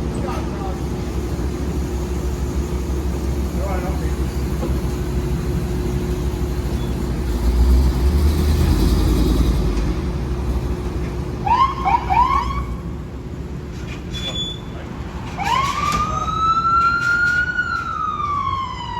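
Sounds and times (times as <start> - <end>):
fire truck diesel engine rumbling: 0.0 - 18.9
rising siren chirps: 11.4 - 12.8, 15.4 - 18.9.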